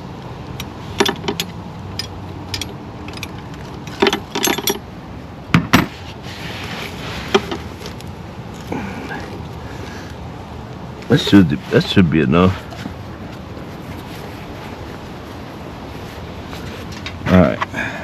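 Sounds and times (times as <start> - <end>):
wrench clinking on metal: 1.0 - 4.8.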